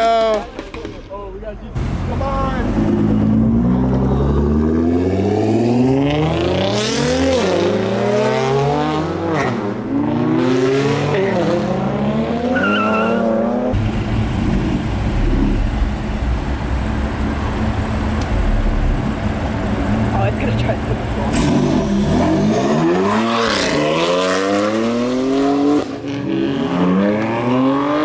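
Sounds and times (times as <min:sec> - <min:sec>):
car engine accelerating: 0:01.7 - 0:28.0
steady rumbling noise: 0:13.7 - 0:22.2.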